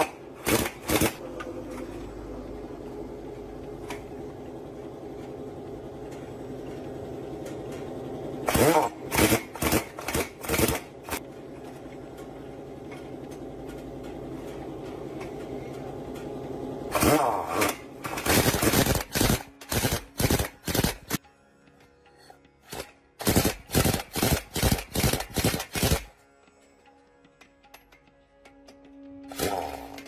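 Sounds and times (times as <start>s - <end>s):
machine humming: 0.0s - 21.2s.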